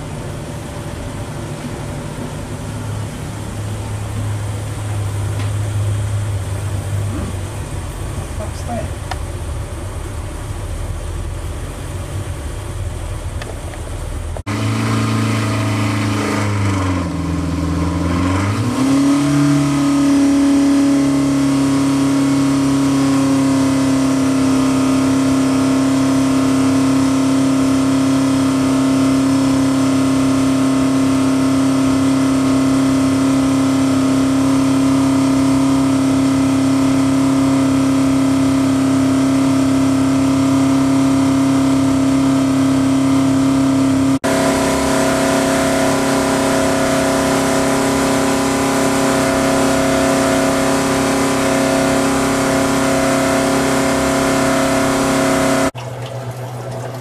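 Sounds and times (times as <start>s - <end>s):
engine running on dynamometer: 0.0s - 55.8s.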